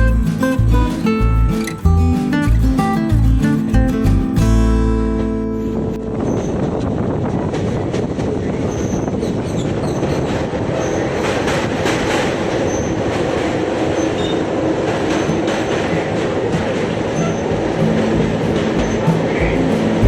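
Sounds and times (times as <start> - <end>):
train rumble and wheel clatter: 6.3 - 20.0
high wheel squeals: 17.0 - 18.1.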